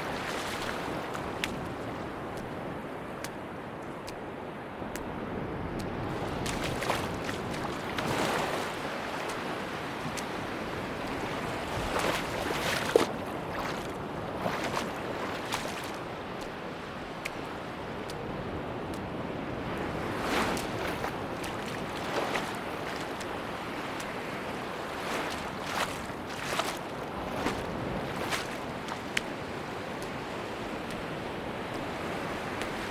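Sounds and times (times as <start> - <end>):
sea waves washing onto beach: 0.0 - 32.9.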